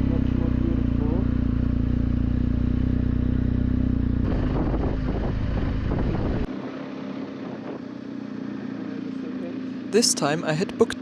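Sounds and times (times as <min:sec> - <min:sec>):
motorcycle engine running: 0:00.0 - 0:11.0
wind noise: 0:04.2 - 0:06.5.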